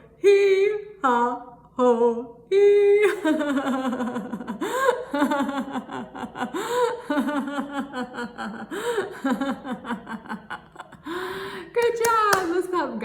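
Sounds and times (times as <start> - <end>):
woman laughing heartily: 3.0 - 12.1.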